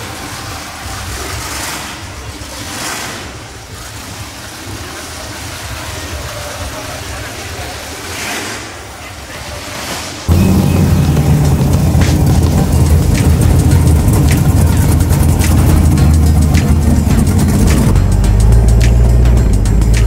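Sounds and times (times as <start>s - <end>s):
car engine rumbling: 0.0s - 20.0s
faint voices: 0.0s - 20.0s
rushing noise: 0.0s - 20.0s.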